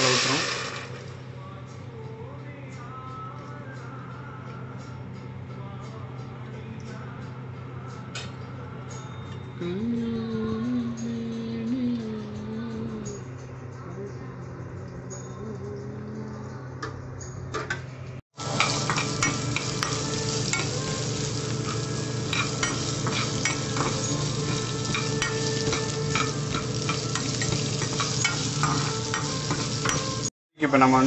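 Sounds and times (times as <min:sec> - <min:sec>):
food sizzling in hot oil: 0:00.0 - 0:01.2, 0:18.4 - 0:30.3.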